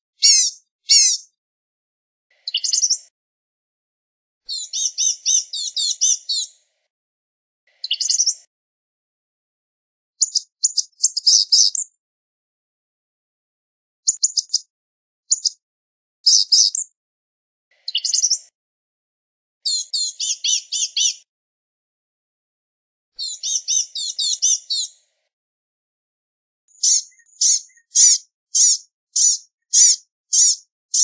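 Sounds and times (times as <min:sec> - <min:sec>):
gnatcatcher singing: 0:00.2 - 0:01.3, 0:16.3 - 0:16.8, 0:26.7 - 0:31.0.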